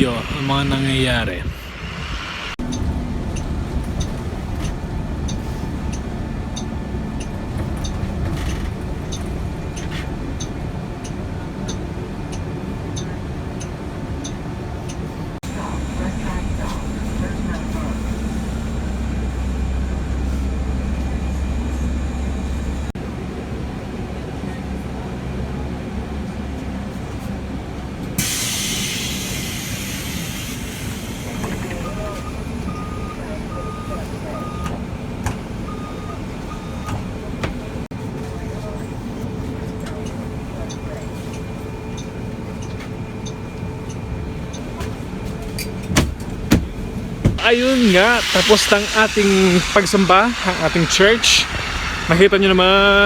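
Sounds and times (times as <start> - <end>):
low rumble of traffic: 0.0 - 28.2, 29.2 - 53.0
loud hiss: 28.2 - 32.2, 47.4 - 53.0.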